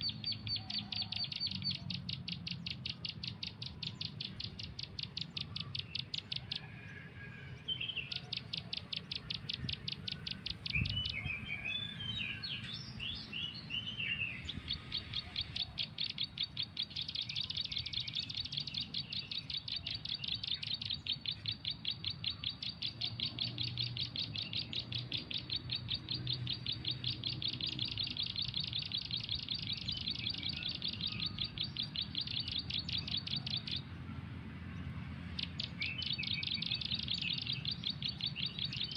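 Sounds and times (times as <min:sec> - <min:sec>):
bird call played from phone: 0:00.0 - 0:12.7
irregular bird chirps and trills: 0:00.0 - 0:38.9.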